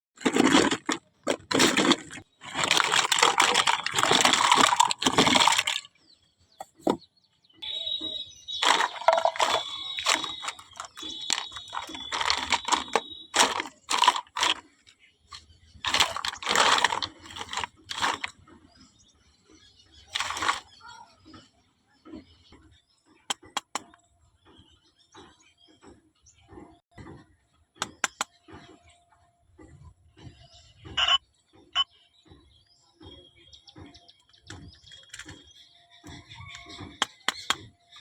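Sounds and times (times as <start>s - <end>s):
plastic and cardboard crinkling: 0.2s - 5.9s, 8.6s - 14.8s, 15.4s - 18.3s, 20.1s - 20.8s
clicks and taps: 23.3s - 24.0s, 27.8s - 28.3s.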